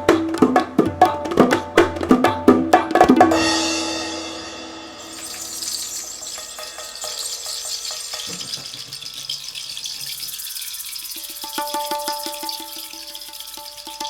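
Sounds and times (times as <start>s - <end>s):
pitched drum strokes: 0.0s - 14.0s
ringing tuned drum strokes: 3.3s - 9.8s
shaken jingles rattling: 5.0s - 14.0s.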